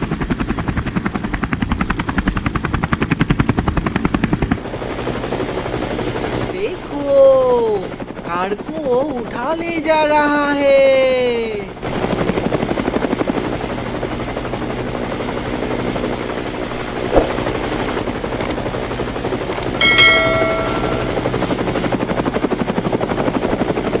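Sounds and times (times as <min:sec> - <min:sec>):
helicopter rotor chopping: 0:00.0 - 0:09.9, 0:11.4 - 0:24.0
brief ringing tone: 0:19.8 - 0:21.6.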